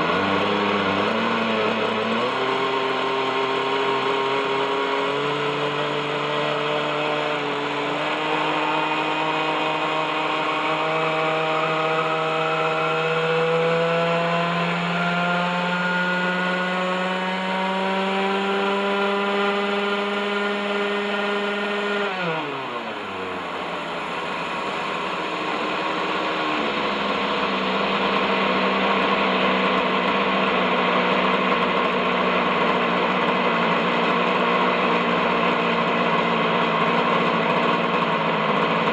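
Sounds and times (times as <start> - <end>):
model helicopter engine running: 0.0 - 38.9.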